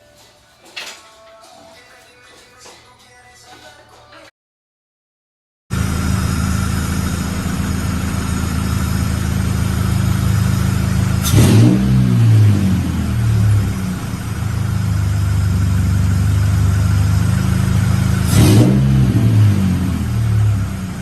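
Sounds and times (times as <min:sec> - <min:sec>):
car engine idling and revving: 0:05.7 - 0:21.0.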